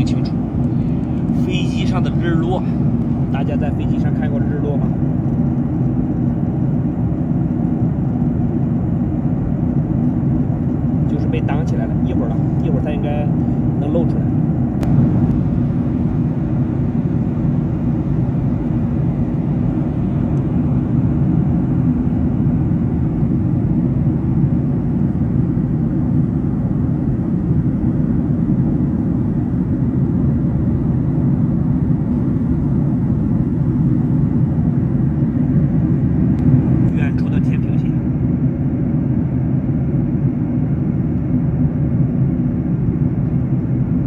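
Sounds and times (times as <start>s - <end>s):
airliner cabin engine hum: 0.0s - 44.0s.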